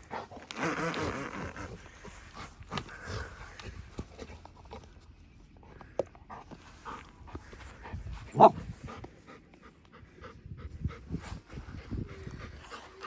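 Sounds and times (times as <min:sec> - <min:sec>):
rustling and scuffling: 0:00.0 - 0:09.8
dogs panting: 0:01.5 - 0:13.0.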